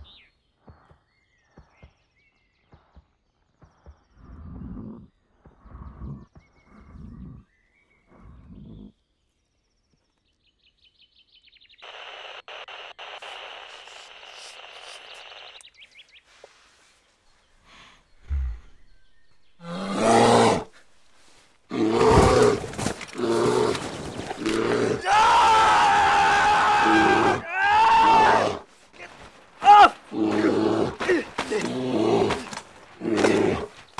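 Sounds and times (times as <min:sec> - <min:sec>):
bear roaring and growling: 0:19.6 - 0:20.9, 0:21.7 - 0:28.7, 0:29.7 - 0:33.8
breathy puffs: 0:28.6 - 0:33.9.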